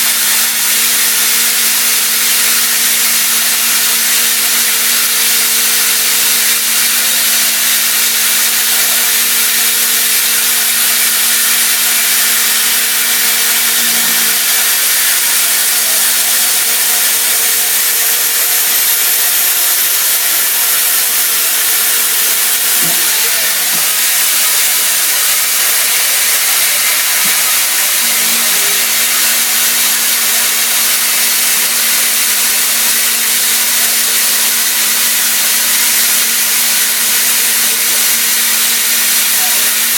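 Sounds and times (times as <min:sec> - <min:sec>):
mill cutting metal hiss: 0:00.0 - 0:39.9.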